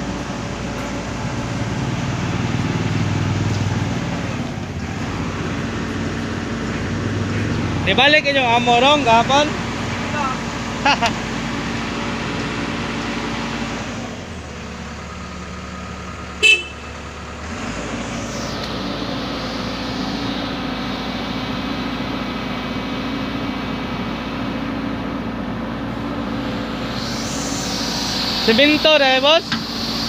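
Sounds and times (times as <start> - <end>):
backhoe diesel engine running: 0.0 - 30.0
horn toot: 16.4 - 16.9.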